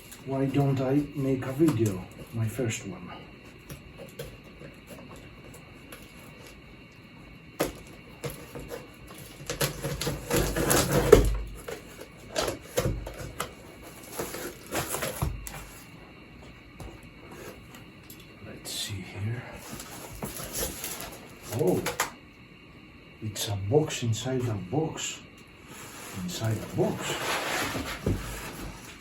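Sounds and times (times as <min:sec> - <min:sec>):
cardboard scraping and rustling: 0:07.6 - 0:16.0, 0:16.8 - 0:17.7, 0:19.6 - 0:22.0, 0:25.7 - 0:29.0.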